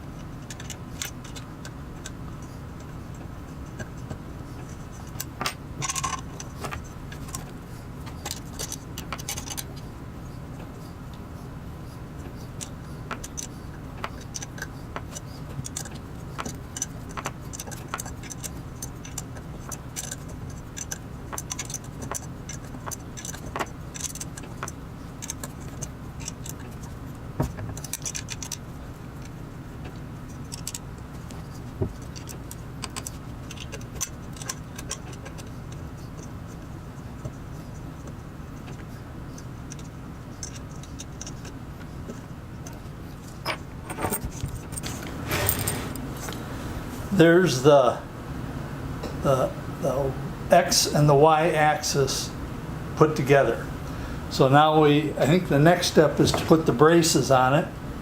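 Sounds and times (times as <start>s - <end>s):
steady low hum: 0.0s - 58.0s
metal tools clinking: 43.4s - 46.0s.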